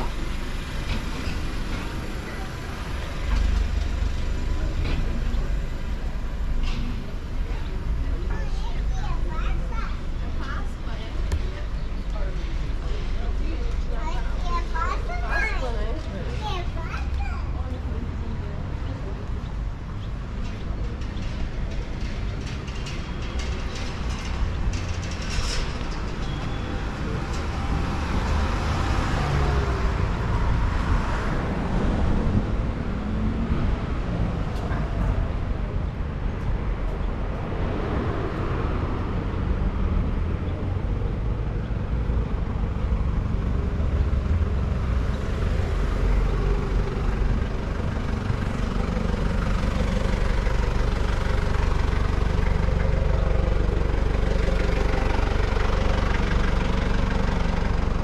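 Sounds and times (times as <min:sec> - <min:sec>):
vehicles passing: 0:00.0 - 0:58.0.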